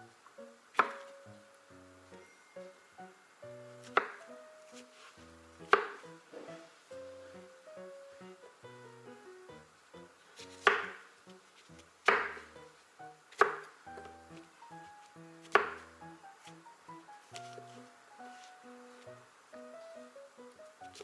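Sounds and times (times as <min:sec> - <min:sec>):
plucked string background music: 0:00.0 - 0:02.7, 0:03.5 - 0:11.4, 0:13.4 - 0:19.0
knife chopping on cutting board: 0:00.8 - 0:01.1, 0:03.9 - 0:04.3, 0:05.6 - 0:06.5, 0:10.5 - 0:11.0, 0:12.0 - 0:12.5, 0:13.4 - 0:14.1, 0:15.4 - 0:15.9.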